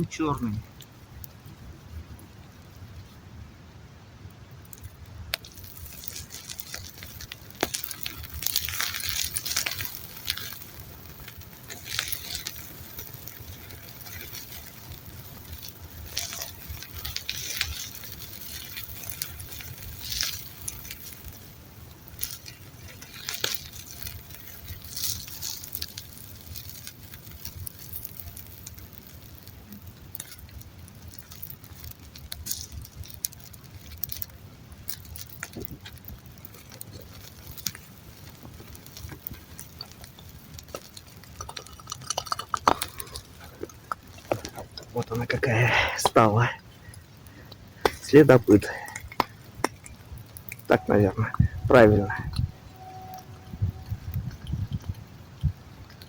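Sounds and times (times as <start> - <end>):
campfire crackling and popping: 0.0 - 56.0
steady low rumble: 42.6 - 56.0.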